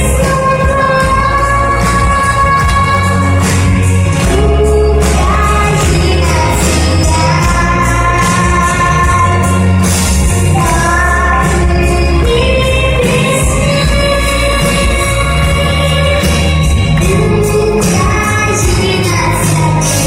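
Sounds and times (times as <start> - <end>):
backing track with bass and drums: 0.0 - 20.0
girl singing pop song: 0.0 - 20.0.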